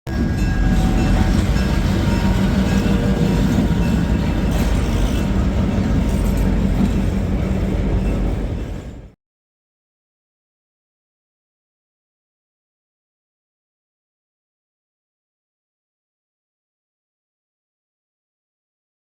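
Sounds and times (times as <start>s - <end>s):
locomotive engine rumble: 0.1s - 9.2s.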